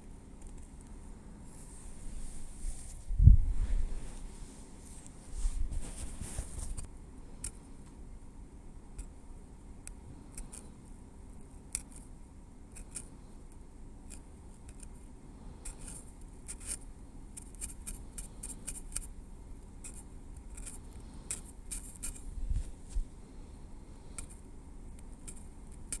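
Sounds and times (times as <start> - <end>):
soft low bump: 2.3 - 4.4.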